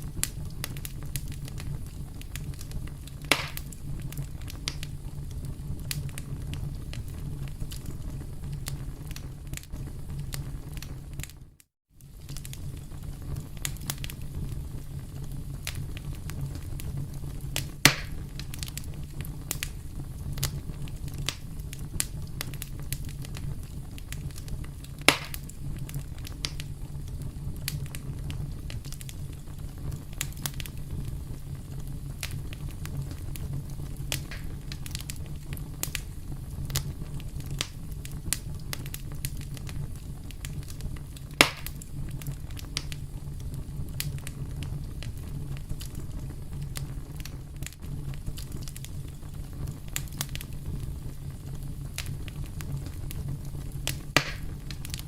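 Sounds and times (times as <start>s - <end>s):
campfire crackling: 0.0s - 11.4s, 12.0s - 55.0s
low rumble of fire: 0.0s - 55.0s
loud sharp pops: 3.2s - 3.8s, 17.6s - 18.2s, 25.0s - 25.5s, 34.1s - 34.6s, 41.4s - 41.8s, 53.9s - 54.8s.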